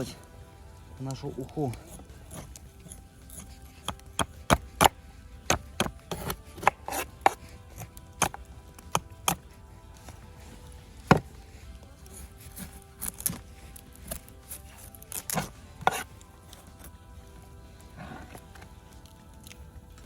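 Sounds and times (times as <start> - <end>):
knife scraping frozen fish: 1.7 - 9.4, 11.1 - 16.9.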